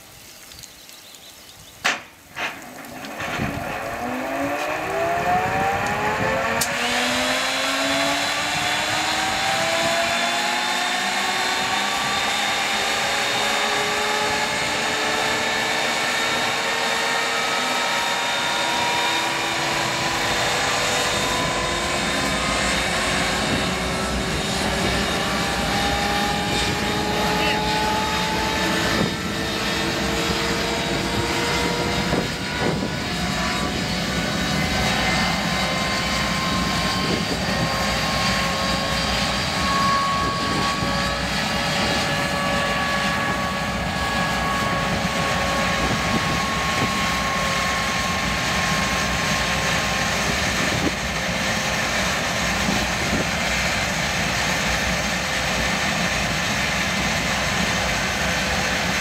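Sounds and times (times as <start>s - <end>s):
rising turbine whine: 1.6s - 59.0s
jet engine roaring: 1.8s - 59.0s.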